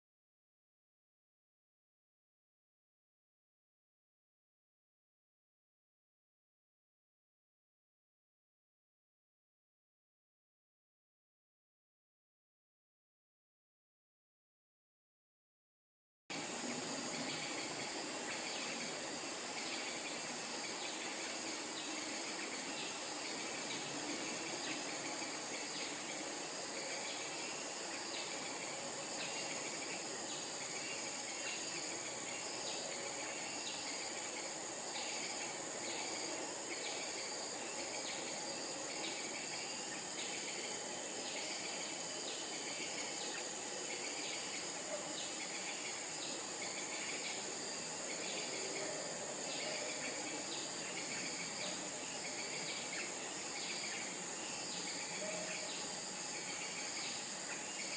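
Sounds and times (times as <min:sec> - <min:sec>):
high-pitched insect drone: 0:16.3 - 0:57.9.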